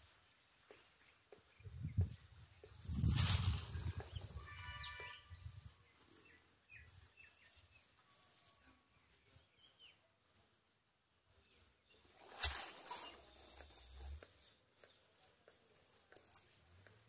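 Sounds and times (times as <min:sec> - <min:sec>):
short high bird chirps: 0:03.4 - 0:05.7.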